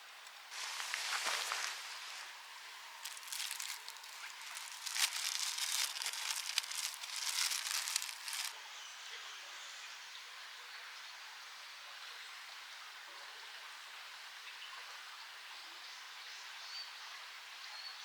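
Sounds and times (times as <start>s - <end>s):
steady hiss: 0.0s - 8.5s
crinkling rustling handling noise: 0.5s - 8.6s.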